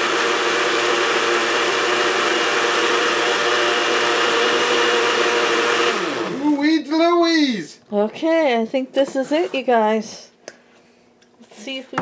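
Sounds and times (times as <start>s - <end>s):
blender motor running: 0.0s - 6.6s.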